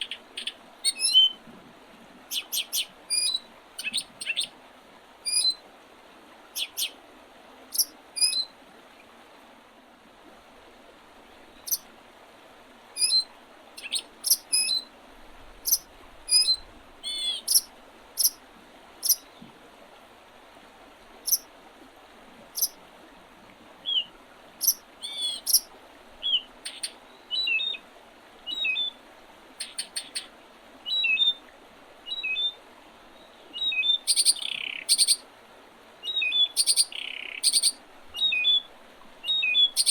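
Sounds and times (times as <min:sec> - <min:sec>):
faint steady hiss: 0:00.0 - 0:39.9
songbirds chirping: 0:02.3 - 0:04.6, 0:06.5 - 0:07.0, 0:07.7 - 0:08.5, 0:11.2 - 0:11.9, 0:13.0 - 0:14.9, 0:15.5 - 0:18.4, 0:19.0 - 0:19.6, 0:21.2 - 0:21.5, 0:23.8 - 0:25.6, 0:32.0 - 0:35.2, 0:36.0 - 0:39.9.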